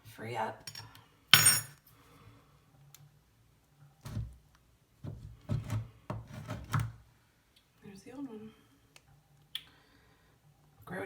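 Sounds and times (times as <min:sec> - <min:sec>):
sharp metallic clink: 0:01.4 - 0:01.8.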